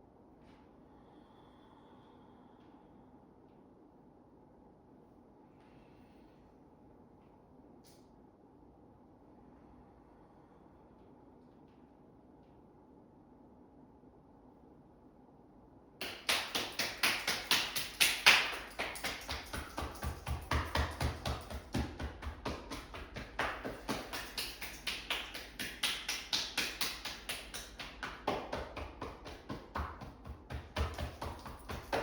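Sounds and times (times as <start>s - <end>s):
rapid even tapping: 16.0s - 32.0s.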